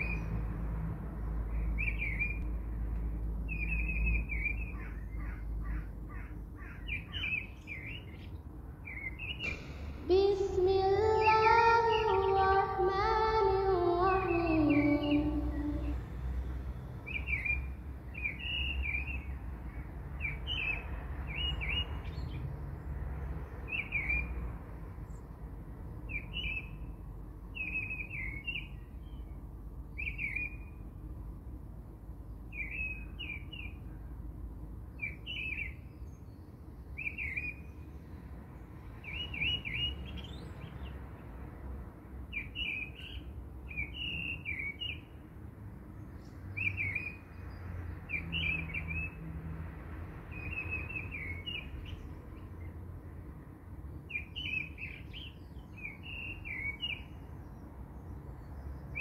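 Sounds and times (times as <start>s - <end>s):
low steady rumble: 9.5s - 16.5s.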